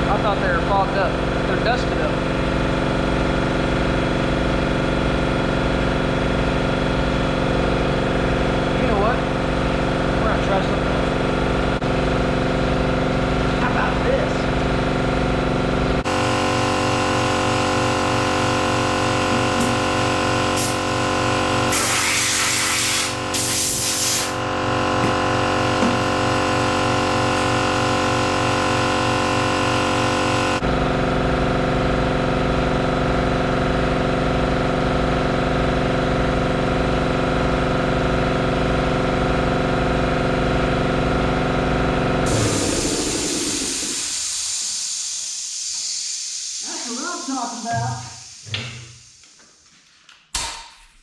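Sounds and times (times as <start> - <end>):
pneumatic chipping tool chattering: 16.0 - 30.6, 42.3 - 49.1
air hiss bursts: 20.6 - 20.8, 21.7 - 24.4, 42.3 - 49.3.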